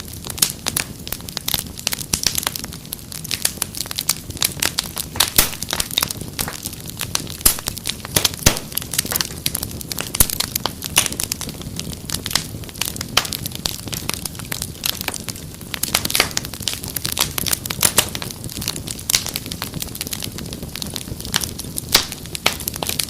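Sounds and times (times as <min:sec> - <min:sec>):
fire snaps and pops: 0:00.0 - 0:23.0
rush of flame: 0:00.0 - 0:23.0.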